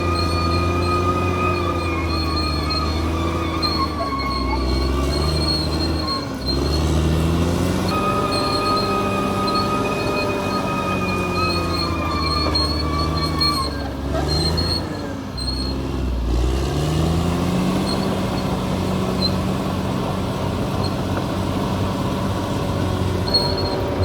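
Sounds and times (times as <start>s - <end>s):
thin high squealing: 0.0s - 15.8s, 23.1s - 24.0s
bulldozer diesel engine: 0.0s - 24.0s.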